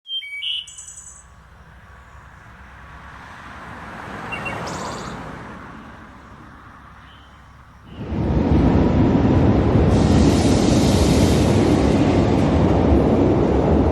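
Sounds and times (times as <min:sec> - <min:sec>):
bird chirping: 0:00.0 - 0:02.8, 0:04.2 - 0:08.0
low traffic rumble: 0:00.6 - 0:13.9
vehicle passing by: 0:01.2 - 0:13.9.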